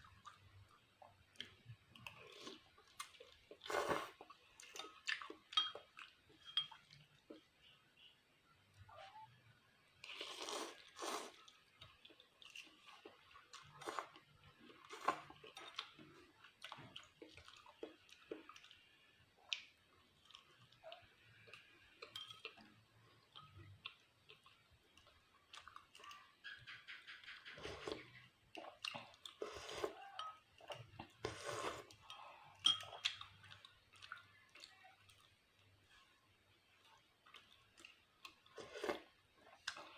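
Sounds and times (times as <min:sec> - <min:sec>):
utensils clinking on dishes: 0:05.5 - 0:06.9.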